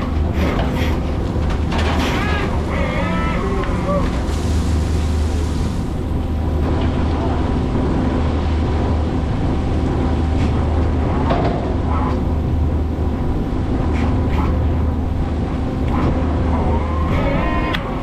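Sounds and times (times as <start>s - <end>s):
boat engine droning: 0.0s - 18.0s
knocks and clatters: 0.3s - 2.7s, 10.4s - 12.2s.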